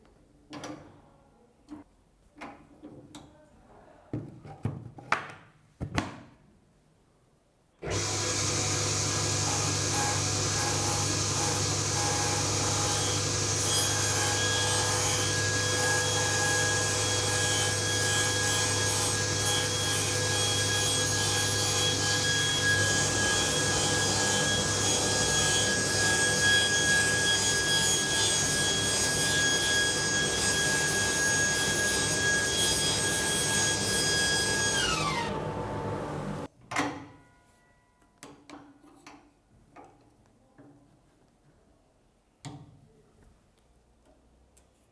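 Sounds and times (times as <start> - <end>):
table saw cutting wood: 7.8 - 36.5.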